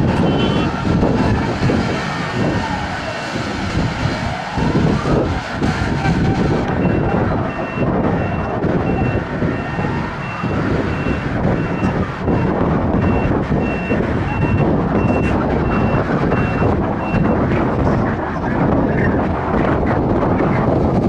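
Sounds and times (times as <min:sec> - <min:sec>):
faint siren wailing: 0:00.0 - 0:18.3
heavy engine rumble: 0:00.0 - 0:21.0
wind rumble: 0:00.0 - 0:21.0
reversing alarm beeping: 0:06.7 - 0:17.4.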